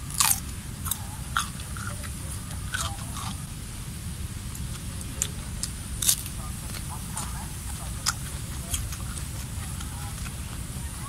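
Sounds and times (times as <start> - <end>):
boy chewing food: 0.0 - 11.0
low rumble: 0.0 - 11.0.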